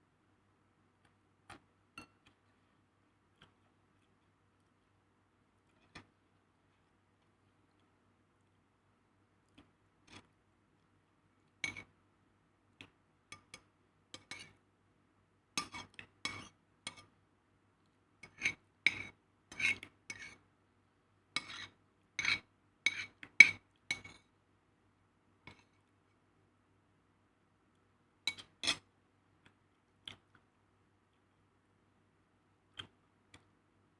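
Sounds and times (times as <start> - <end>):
metal spoon scraping a plate: 18.2 - 20.4, 21.4 - 24.2.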